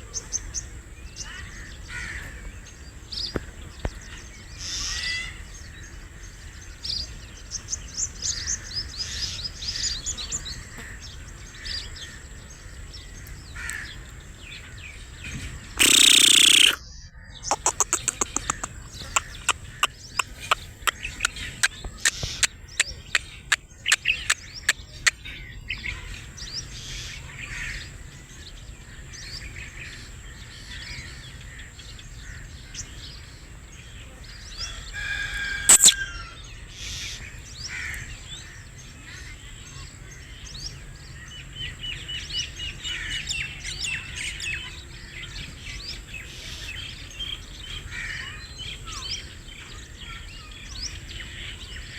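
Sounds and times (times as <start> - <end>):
birds calling: 0.0 - 51.9
bird trill: 15.7 - 26.1, 34.7 - 38.0.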